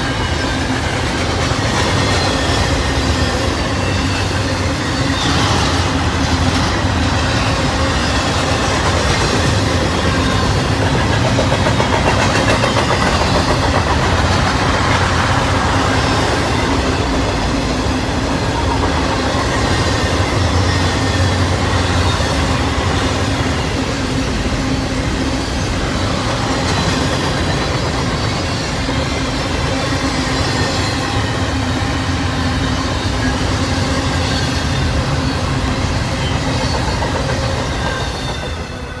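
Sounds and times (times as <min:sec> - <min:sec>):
high wheel squeal: 0:00.0 - 0:11.2, 0:12.2 - 0:39.0
train wheels on rails: 0:00.0 - 0:39.0.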